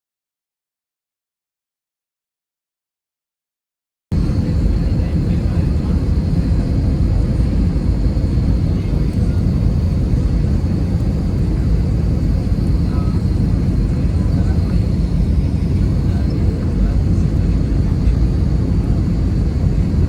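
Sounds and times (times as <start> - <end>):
aircraft cabin rumble: 4.1 - 20.0
faint high whine: 4.2 - 20.0.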